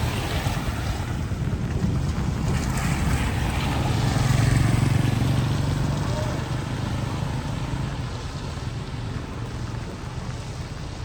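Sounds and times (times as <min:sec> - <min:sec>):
wind noise: 0:00.0 - 0:07.0.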